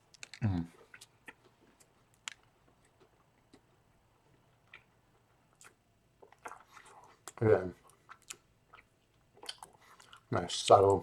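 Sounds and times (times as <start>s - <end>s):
person chewing: 0.2s - 10.3s.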